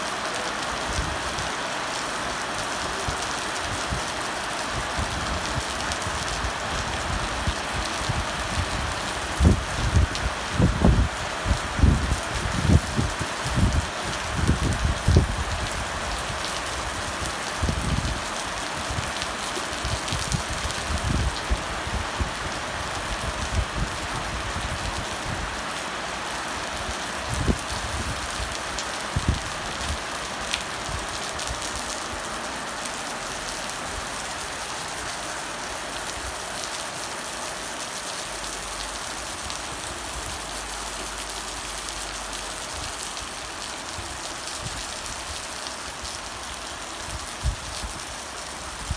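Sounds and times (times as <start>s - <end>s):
heavy rain pouring: 0.0s - 48.9s
wind buffeting microphone: 4.7s - 19.2s, 19.8s - 25.6s, 26.7s - 30.1s, 47.1s - 48.1s.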